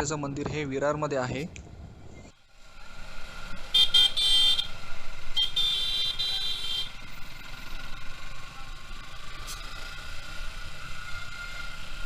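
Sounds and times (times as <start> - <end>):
steady hum of riding: 0.0 - 12.0
vehicle horn honking: 3.7 - 4.8, 5.4 - 7.0.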